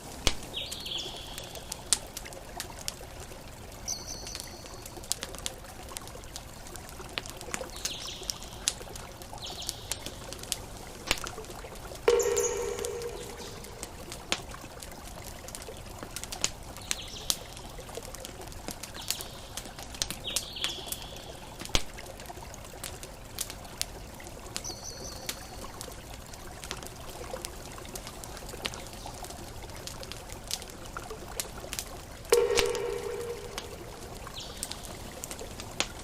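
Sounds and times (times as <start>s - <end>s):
campfire crackling and popping: 0.0s - 36.0s
short high chirps: 12.1s - 14.1s, 32.4s - 34.3s.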